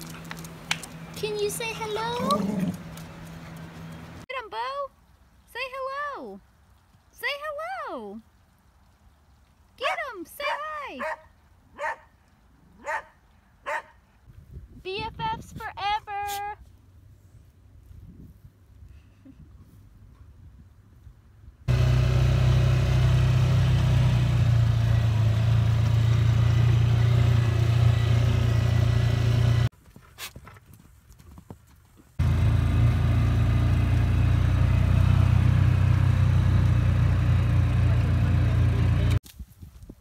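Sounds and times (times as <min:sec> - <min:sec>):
engine running: 0:00.0 - 0:04.2, 0:21.7 - 0:29.7, 0:32.2 - 0:39.2.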